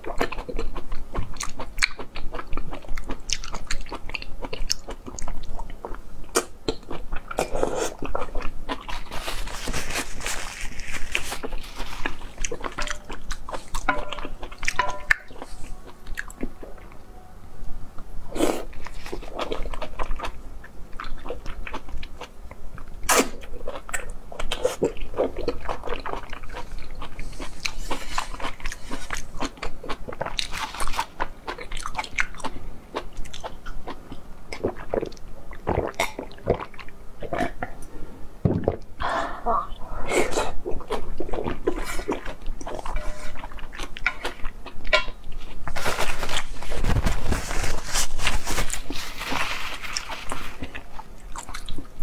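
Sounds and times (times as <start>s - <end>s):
person biting and chewing: 6.3s - 16.6s.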